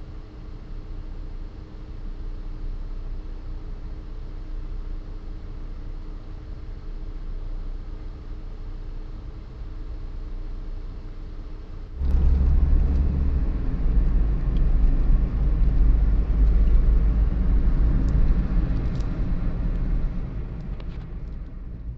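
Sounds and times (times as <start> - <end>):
wind buffeting microphone: 12.0 - 21.9.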